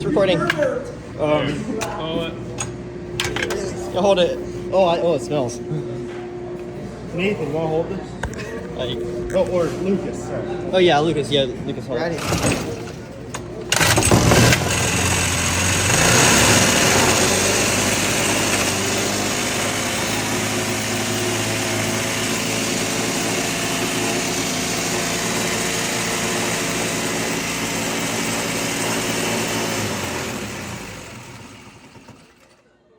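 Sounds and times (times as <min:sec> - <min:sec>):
small engine running: 0:12.1 - 0:32.6.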